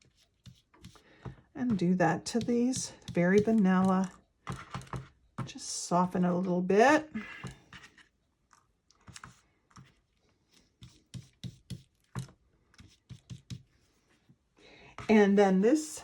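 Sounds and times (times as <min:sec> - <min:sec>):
light tapping and scuffing of paper: 0:00.0 - 0:05.5, 0:07.3 - 0:14.4.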